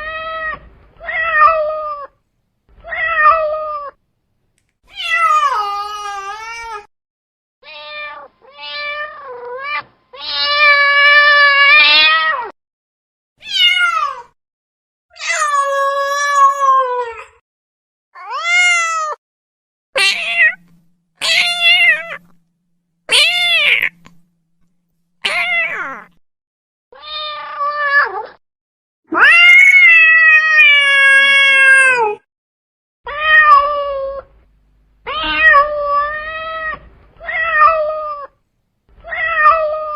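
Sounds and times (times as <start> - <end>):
cat meowing: 7.6 - 12.5, 13.4 - 14.3, 18.2 - 19.2, 20.0 - 22.4, 23.1 - 24.3, 25.2 - 26.2, 27.0 - 28.4, 29.1 - 32.2, 33.1 - 34.3, 35.0 - 38.4, 39.0 - 39.9.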